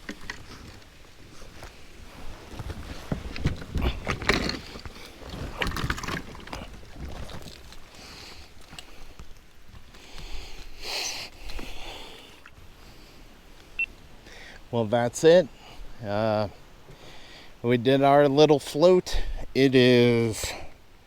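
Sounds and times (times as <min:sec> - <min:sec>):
paddle splashing in water: 0:00.0 - 0:10.8.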